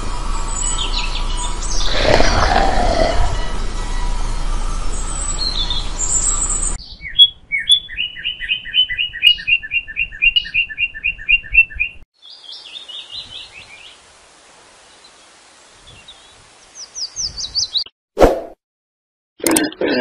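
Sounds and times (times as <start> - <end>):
birds chirping: 4.9 - 14.0
outdoor background hiss: 12.2 - 17.8.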